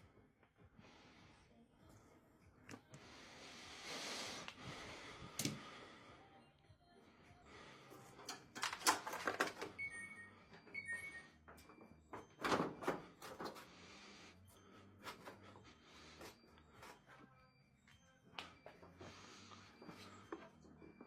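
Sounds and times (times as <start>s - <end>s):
parts clattering and scraping: 8.0s - 9.8s.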